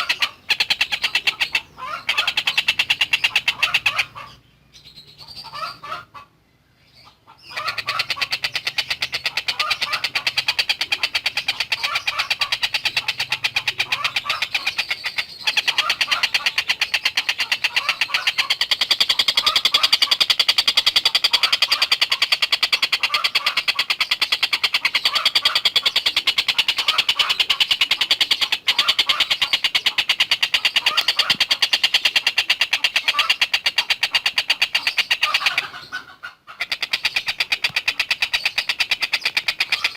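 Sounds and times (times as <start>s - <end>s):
bird rattling chatter: 7.8s - 35.7s.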